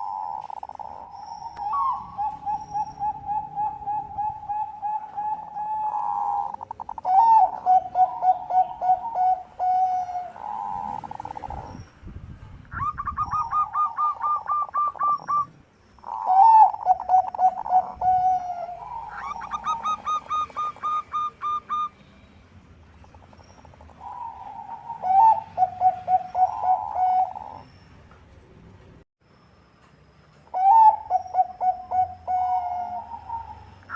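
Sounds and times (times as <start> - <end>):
doves cooing: 0.0 - 11.8, 12.8 - 21.9, 23.1 - 27.7, 30.5 - 33.9.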